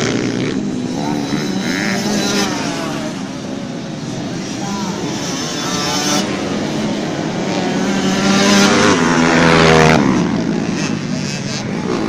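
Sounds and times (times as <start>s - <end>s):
dirt bike engines racing: 0.0s - 12.0s.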